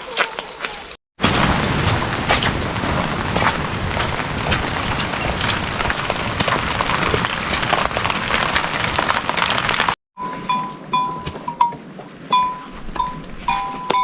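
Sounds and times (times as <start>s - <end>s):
rain pattering: 0.1s - 10.0s
neck bells clanking: 10.2s - 14.0s.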